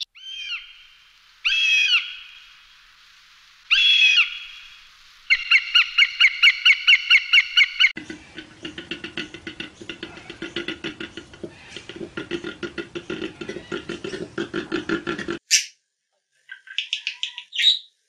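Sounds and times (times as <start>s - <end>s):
hawk calling: 0.0s - 2.5s, 3.7s - 8.0s.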